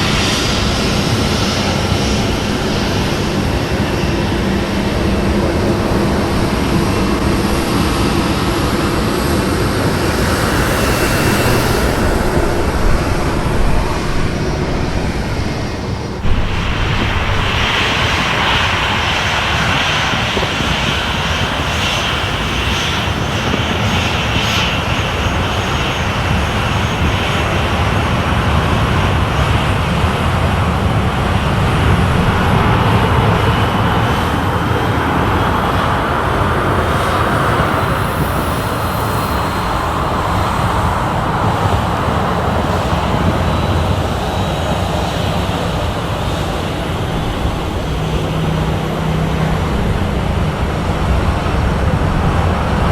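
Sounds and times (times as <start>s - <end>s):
airliner engines running: 0.0s - 52.9s
faint rising whine: 3.7s - 20.4s.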